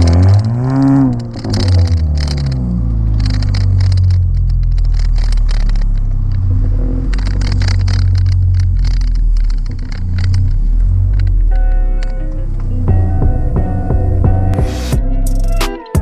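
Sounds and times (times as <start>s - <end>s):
crackly noise: 0.0s - 12.8s
car exhaust drone: 0.0s - 15.6s.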